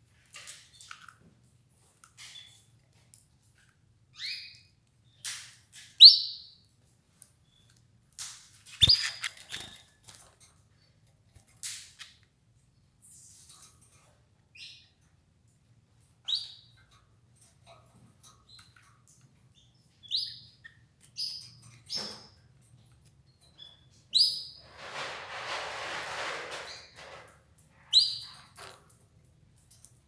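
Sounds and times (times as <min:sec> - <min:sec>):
canaries chirping: 0:08.8 - 0:09.9, 0:27.9 - 0:28.6
scratchy noises: 0:24.6 - 0:27.2.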